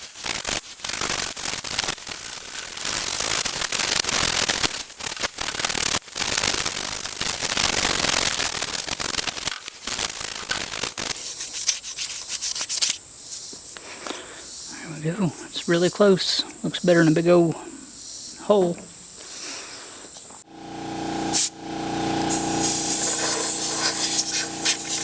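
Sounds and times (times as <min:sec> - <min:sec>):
abrasive scrubbing on metal: 0:22.3 - 0:25.0.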